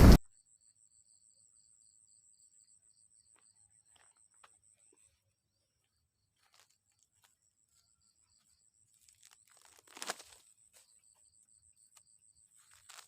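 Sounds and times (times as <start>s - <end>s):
faint cricket trill: 0.3s - 13.0s
short rustling crackle: 9.1s - 10.4s.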